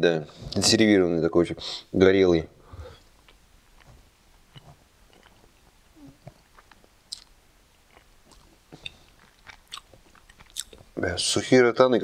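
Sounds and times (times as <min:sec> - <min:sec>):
person chewing food: 0:03.0 - 0:11.0
wet mouth clicks: 0:03.2 - 0:10.9.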